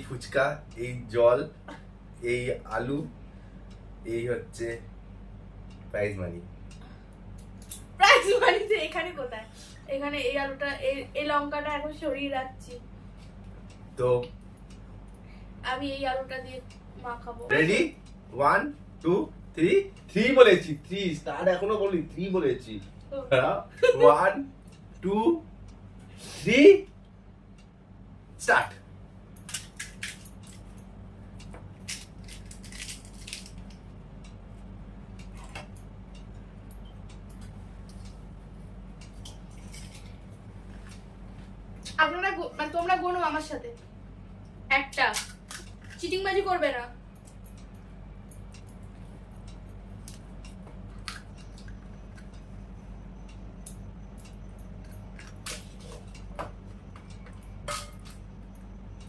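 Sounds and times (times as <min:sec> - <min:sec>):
steady low hum: 0:00.0 - 0:59.0
crisp shells cracking and crunching: 0:29.4 - 0:30.7, 0:31.8 - 0:33.9.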